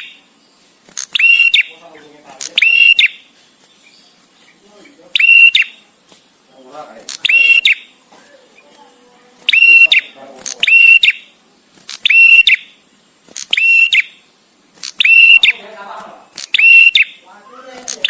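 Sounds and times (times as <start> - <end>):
bird whistled calls: 1.1 - 1.8, 2.6 - 3.3, 5.1 - 5.8, 7.2 - 7.9, 9.5 - 11.3, 12.0 - 12.8, 13.4 - 14.2, 15.0 - 15.6, 16.5 - 17.2.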